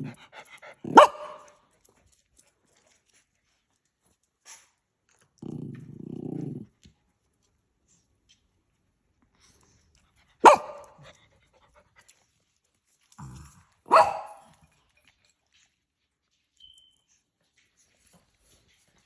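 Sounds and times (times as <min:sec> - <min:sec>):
dog barking: 0:00.9 - 0:01.6, 0:10.4 - 0:11.0, 0:13.9 - 0:14.5.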